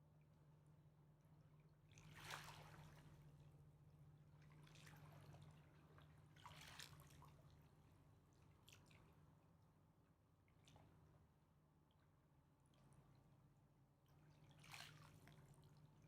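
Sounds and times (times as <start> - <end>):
water lapping at bank: 1.9 - 3.3, 4.4 - 7.5, 14.3 - 16.0.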